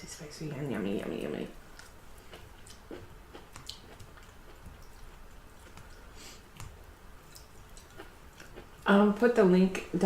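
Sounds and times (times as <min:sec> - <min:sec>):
person chewing food: 0:01.6 - 0:08.9.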